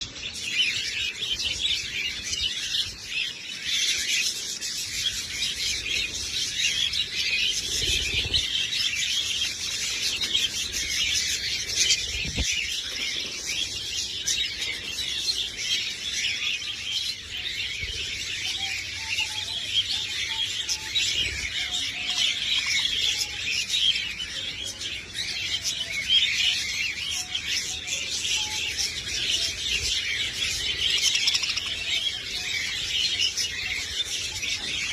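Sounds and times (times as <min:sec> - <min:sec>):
budgerigars chirping: 0:27.2 - 0:34.9.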